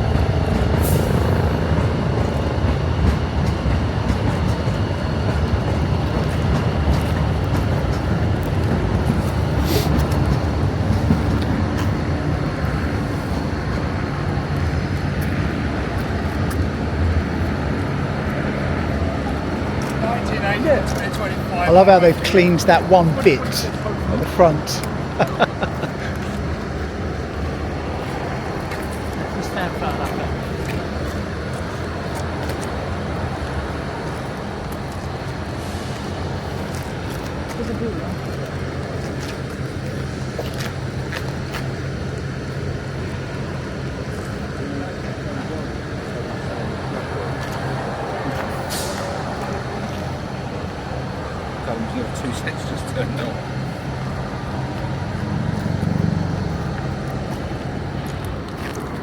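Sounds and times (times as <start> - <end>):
electric train hum and rumble: 0.0 - 59.0.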